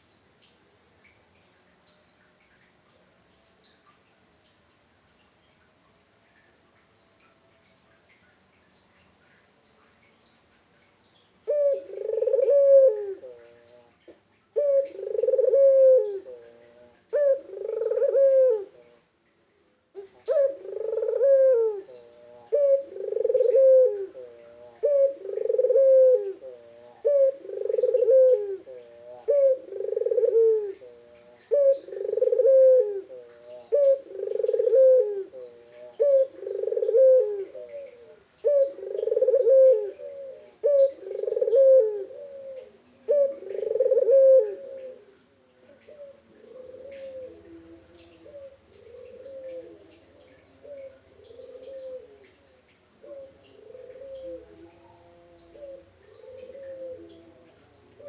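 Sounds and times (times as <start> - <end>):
dove cooing: 11.4 - 13.9, 14.6 - 19.0, 20.0 - 58.0.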